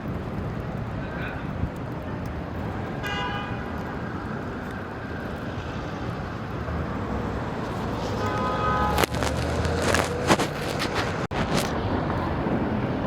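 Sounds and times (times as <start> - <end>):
city street traffic: 0.0 - 13.0
car horn toot: 3.0 - 3.6, 8.2 - 9.1.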